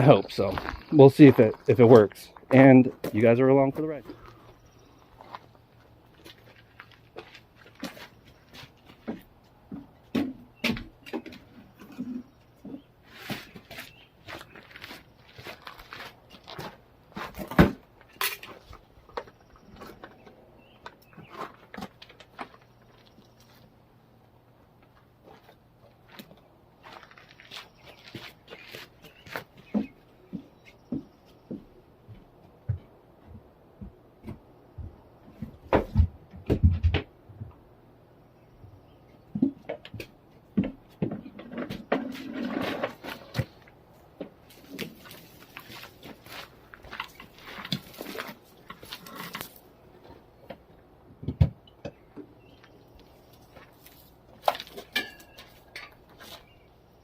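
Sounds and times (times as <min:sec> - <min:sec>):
objects knocking and clunking: 0:07.1 - 0:13.8, 0:16.5 - 0:23.2, 0:29.4 - 0:37.6, 0:39.3 - 0:52.4, 0:54.4 - 0:56.5
rustling scrape: 0:42.0 - 0:43.6.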